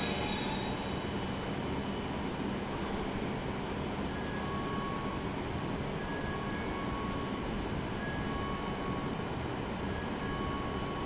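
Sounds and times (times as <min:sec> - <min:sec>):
faint high tones: 0:00.0 - 0:01.4
train equipment running: 0:00.0 - 0:03.5.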